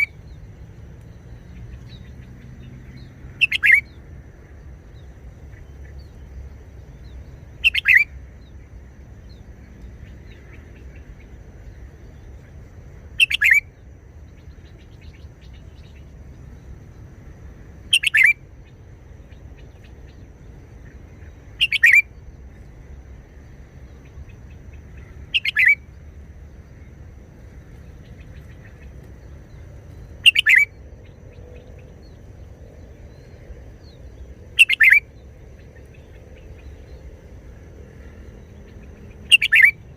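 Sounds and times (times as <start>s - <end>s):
bulbul singing: 0.0s - 16.9s, 17.8s - 22.8s, 23.5s - 39.9s
faint low hum: 0.0s - 39.9s.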